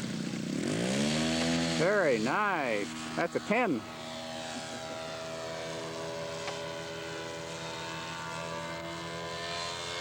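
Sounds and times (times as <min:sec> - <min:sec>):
model airplane engine running: 0:00.0 - 0:10.0.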